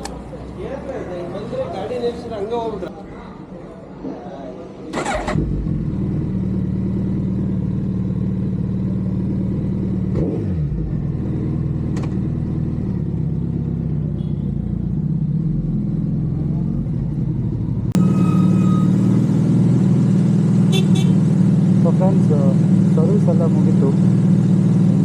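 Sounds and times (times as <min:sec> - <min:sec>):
motorcycle engine idling: 0:05.0 - 0:18.0, 0:19.1 - 0:25.0.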